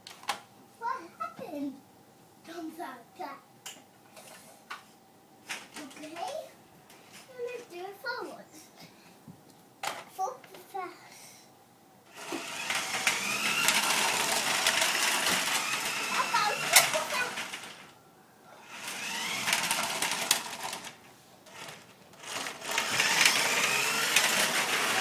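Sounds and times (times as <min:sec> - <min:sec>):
toy electric motor whirring: 0:12.1 - 0:17.9, 0:18.6 - 0:25.0.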